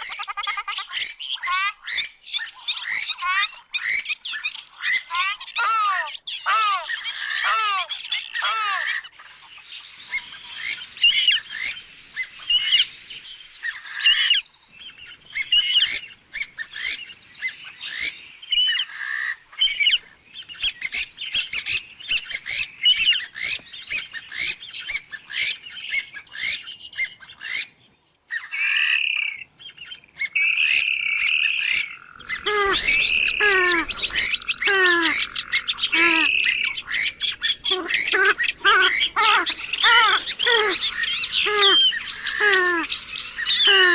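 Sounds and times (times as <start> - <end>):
swamphen calls sliding downward: 30.6 - 43.9.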